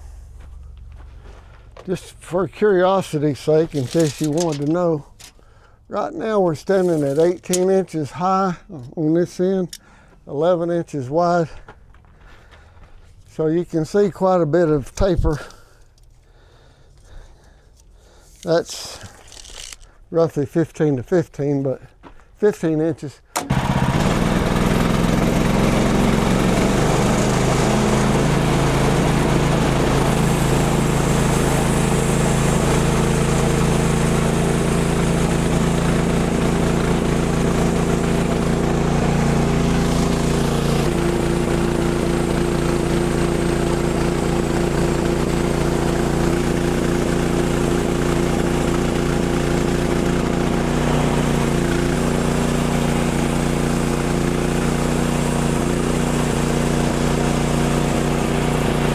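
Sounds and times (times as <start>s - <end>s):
sawmill gasoline engine running: 0.0s - 11.2s, 23.3s - 58.9s.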